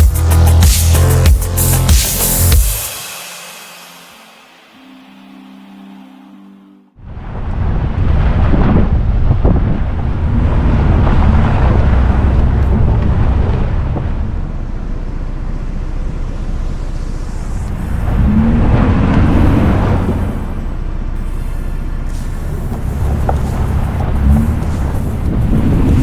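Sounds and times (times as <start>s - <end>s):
vehicle engine rumble: 7.0s - 26.0s
wind buffeting microphone: 7.1s - 14.4s, 22.7s - 26.0s.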